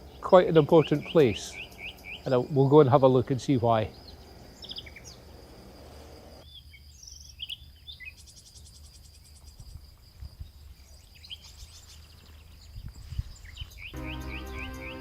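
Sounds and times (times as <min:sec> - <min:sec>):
rapid high bird trill: 0:00.0 - 0:06.4, 0:13.8 - 0:15.0
small birds chirping: 0:00.0 - 0:15.0.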